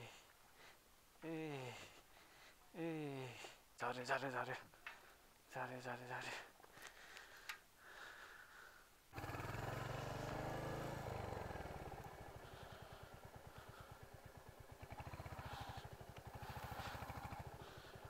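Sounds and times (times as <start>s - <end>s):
motorcycle engine pulsing: 9.2s - 18.0s.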